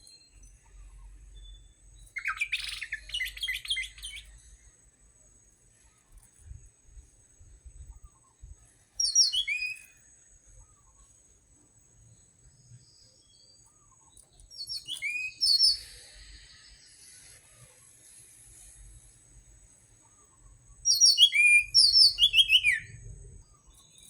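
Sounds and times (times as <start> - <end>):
thrush singing whistled notes: 0.0 - 4.6, 8.4 - 10.0, 14.5 - 17.4, 20.2 - 24.0.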